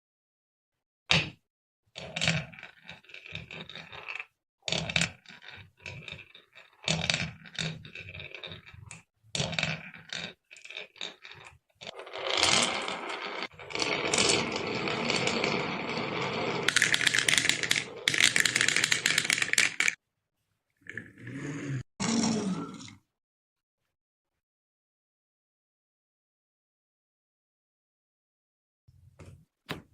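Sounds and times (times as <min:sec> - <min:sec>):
marbles rolling down wooden run: 0:02.0 - 0:20.0.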